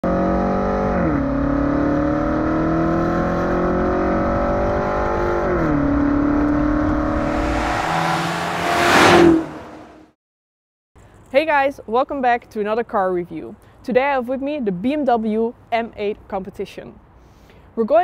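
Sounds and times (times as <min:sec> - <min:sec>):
car engine accelerating: 0:00.1 - 0:10.1
car passing by: 0:06.6 - 0:10.2.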